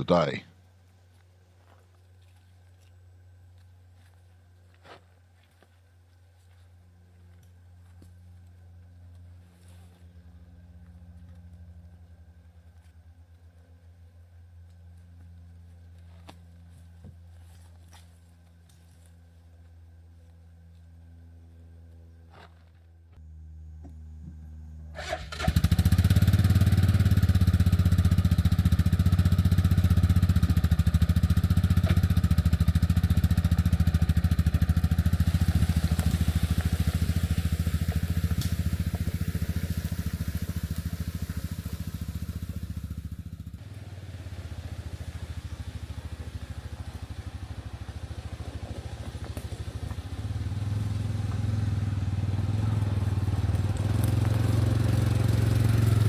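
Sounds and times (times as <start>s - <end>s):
large engine running: 23.2s - 56.0s.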